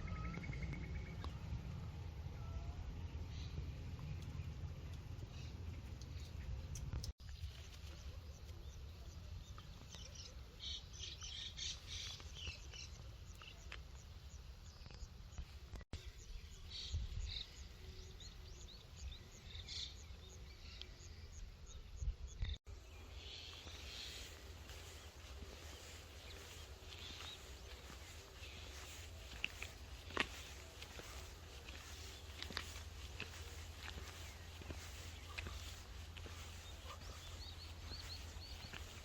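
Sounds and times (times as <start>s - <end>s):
steady low rumble: 0.0s - 7.1s, 22.8s - 39.0s
small birds chirping: 3.2s - 39.0s.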